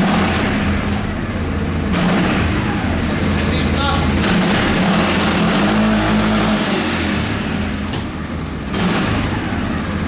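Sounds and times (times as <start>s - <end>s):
quad bike engine running: 0.0s - 10.0s.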